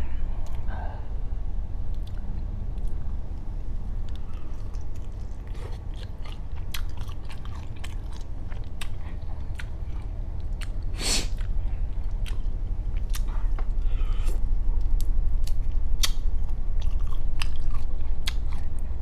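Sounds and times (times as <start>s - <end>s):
close chewing with wet mouth clicks: 4.0s - 13.6s, 14.2s - 18.8s
loud slurp: 11.0s - 11.4s.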